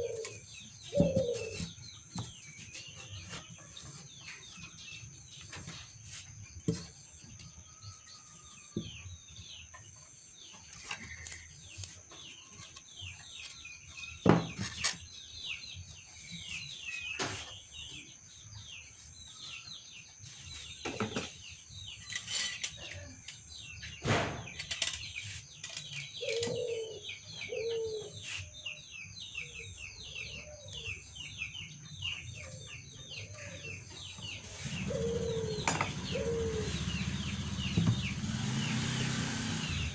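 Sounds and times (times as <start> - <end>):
dove cooing: 0.0 - 1.7, 26.2 - 28.2, 34.4 - 38.2
small birds chirping: 0.0 - 39.9
sharp knocks: 37.7 - 38.2.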